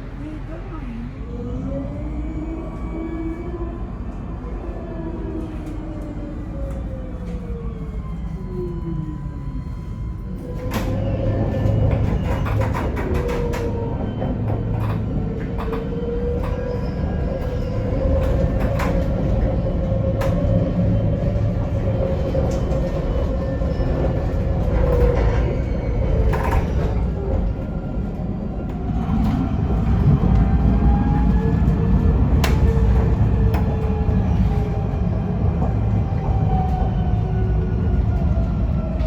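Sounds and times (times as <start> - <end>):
tram wheels rumbling on track: 0.0 - 39.0.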